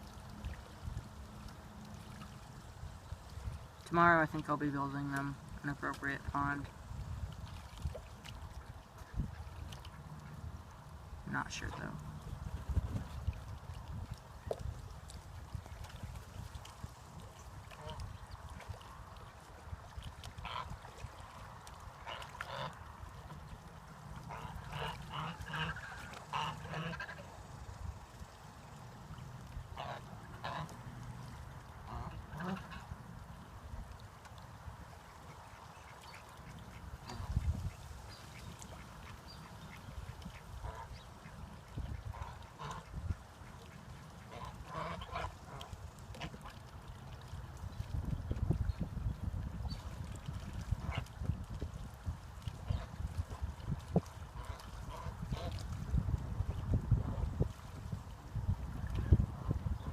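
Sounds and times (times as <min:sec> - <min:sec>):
ducks quacking: 0:20.4 - 0:20.7, 0:22.0 - 0:22.8, 0:24.2 - 0:27.4, 0:29.7 - 0:30.8, 0:31.8 - 0:32.9, 0:35.1 - 0:45.6.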